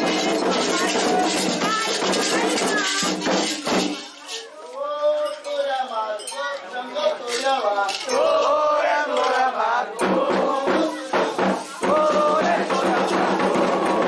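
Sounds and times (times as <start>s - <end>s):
drums and hand percussion: 0.0s - 14.0s
group chanting call and response: 4.0s - 14.0s.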